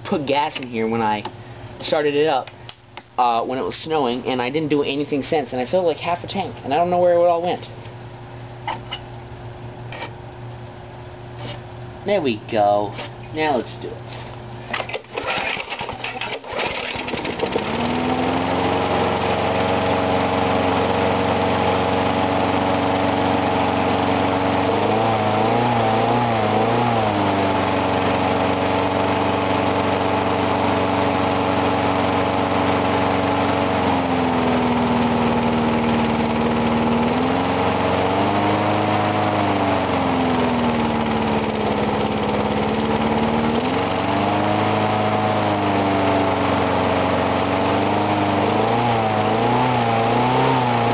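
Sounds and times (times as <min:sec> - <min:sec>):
lawn mower engine running: 0:14.1 - 0:50.9
lawn mower pull-start: 0:14.6 - 0:50.9.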